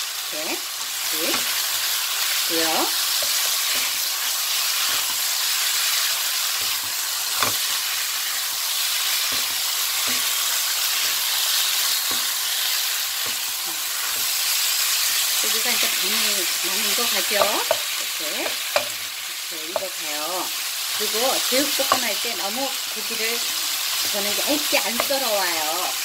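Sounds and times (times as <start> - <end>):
meat sizzling in a frying pan: 0.0 - 26.0
spatula scraping and knocking pan: 9.0 - 14.4, 16.9 - 19.9, 21.5 - 22.4, 24.0 - 25.3.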